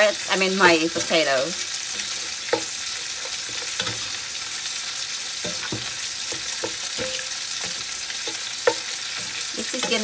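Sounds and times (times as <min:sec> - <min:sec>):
chicken sizzling in a pot: 0:00.0 - 0:10.0.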